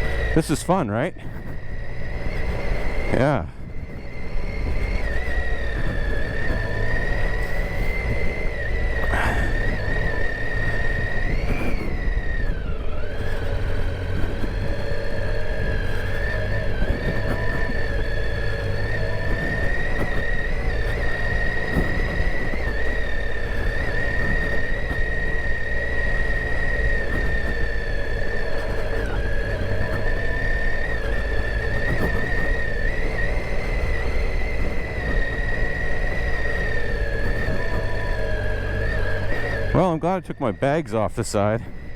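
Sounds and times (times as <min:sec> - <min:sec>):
motorcycle engine rumbling: 0:00.0 - 0:41.9.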